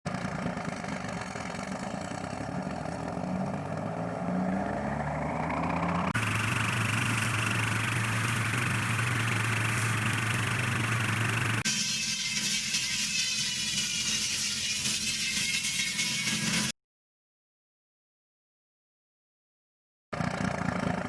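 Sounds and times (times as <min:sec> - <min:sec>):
tree-cutting machine engine: 0:06.2 - 0:11.7, 0:20.2 - 0:21.0
machine running with hiss: 0:06.2 - 0:12.0.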